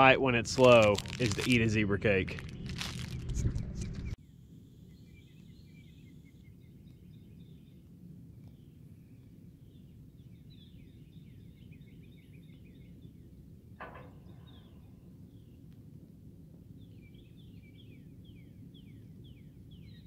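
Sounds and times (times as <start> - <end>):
low steady rumble: 0.0 - 4.2
songbirds chirping and trilling: 2.4 - 15.9, 16.5 - 20.0.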